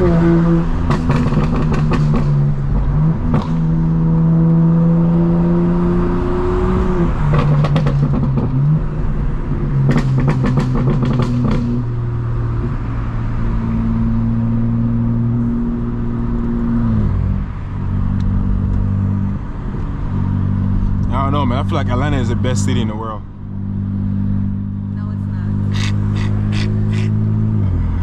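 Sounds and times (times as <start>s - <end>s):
exhaust crackling pops: 0.8s - 3.6s
car exhaust tone: 17.2s - 28.0s.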